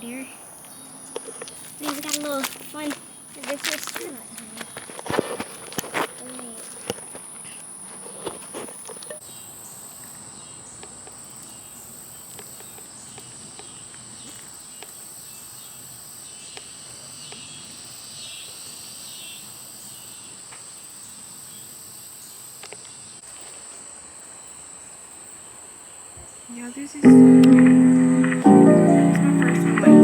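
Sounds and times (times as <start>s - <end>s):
insects singing: 0.0s - 9.2s
footsteps: 1.1s - 9.1s, 27.1s - 30.0s.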